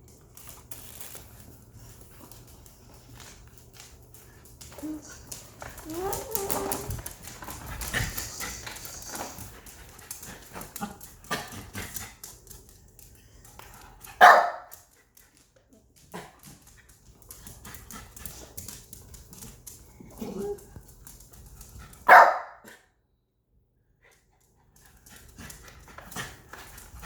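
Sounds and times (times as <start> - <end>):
dog barking: 14.2 - 14.7, 22.1 - 22.8.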